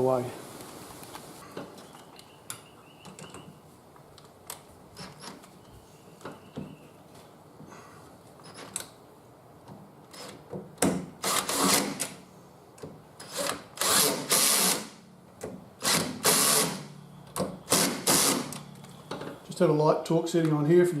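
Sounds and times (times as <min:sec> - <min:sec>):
power drill running: 0:13.3 - 0:14.9, 0:15.8 - 0:16.8, 0:17.7 - 0:18.6.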